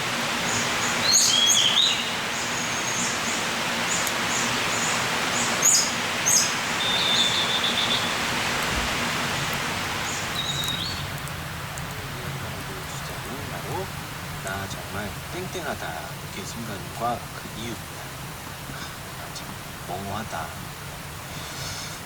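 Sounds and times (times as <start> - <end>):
outdoor hiss: 0.0 - 22.0
small birds chirping: 0.0 - 22.0
bird trill: 0.4 - 8.3, 10.0 - 11.2.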